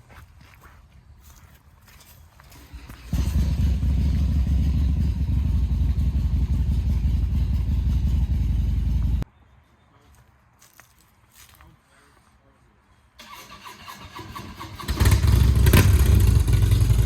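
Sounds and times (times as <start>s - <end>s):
motorcycle engine running: 2.7s - 9.2s, 14.9s - 17.0s.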